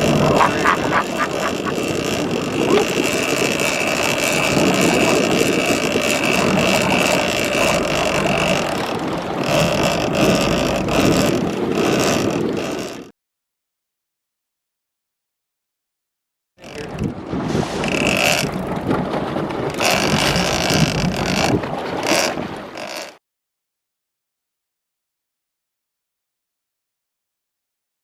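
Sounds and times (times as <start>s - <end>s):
wind buffeting microphone: 0.0s - 12.7s, 16.8s - 22.8s
boat engine running: 0.0s - 13.1s, 16.6s - 23.2s.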